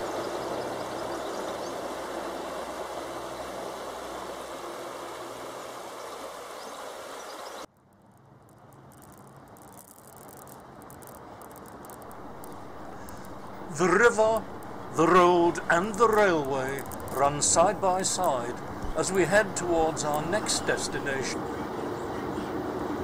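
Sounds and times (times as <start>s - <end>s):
train crossing a viaduct: 0.0s - 7.2s, 7.8s - 23.0s
shallow stony river rushing: 0.0s - 7.7s, 9.8s - 23.0s
light rattles: 7.8s - 21.1s
running noise inside train carriage: 14.4s - 23.0s.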